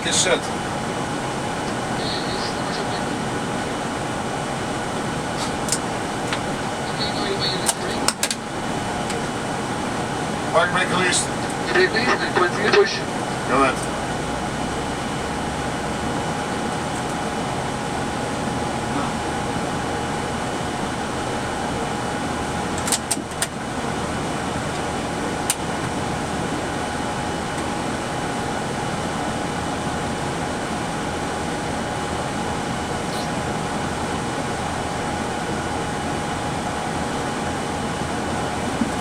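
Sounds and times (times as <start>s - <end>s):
constant mid-pitched tone: 0.0s - 14.2s
ventilation air rush: 0.0s - 39.0s.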